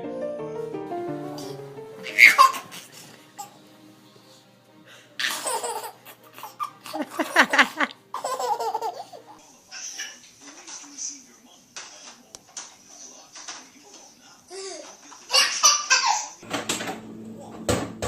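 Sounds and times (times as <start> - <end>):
baby laughing: 1.4 - 3.6, 5.2 - 10.2, 14.5 - 16.4.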